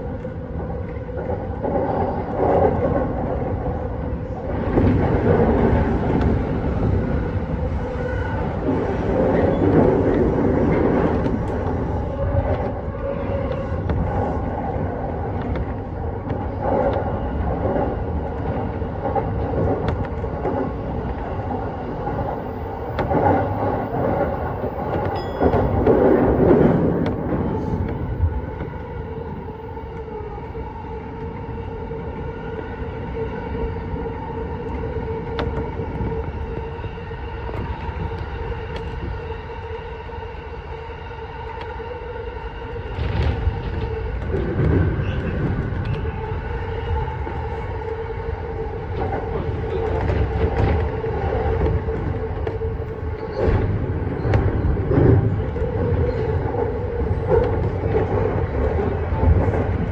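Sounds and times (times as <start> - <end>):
train wheels rumbling on rails: 0.0 - 59.9
faint steady tones: 11.1 - 50.4.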